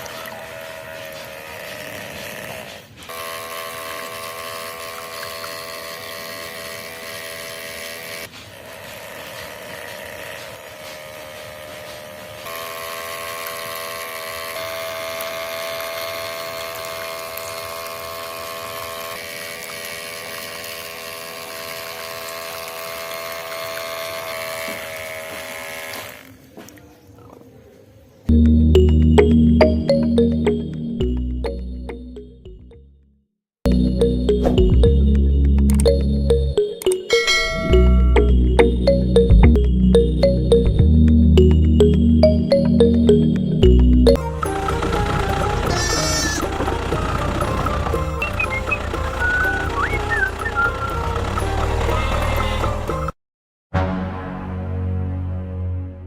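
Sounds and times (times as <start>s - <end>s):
small electric motor whining: 0.0s - 26.5s, 44.2s - 53.2s.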